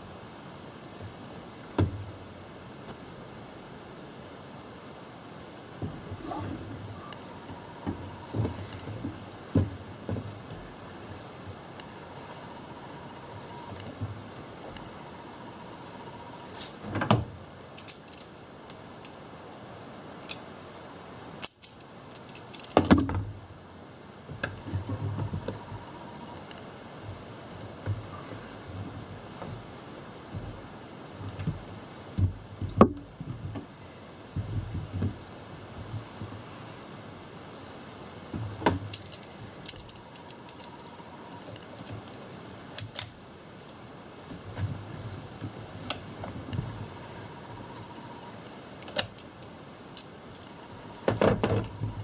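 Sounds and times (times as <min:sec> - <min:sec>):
metal tools clinking: 0:17.8 - 0:18.3, 0:21.4 - 0:22.8, 0:38.9 - 0:43.1.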